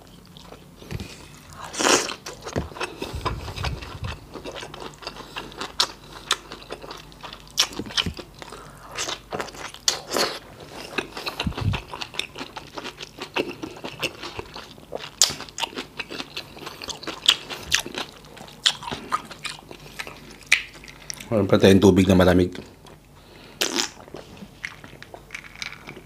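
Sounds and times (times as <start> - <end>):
close chewing with wet mouth clicks: 1.7 - 21.3.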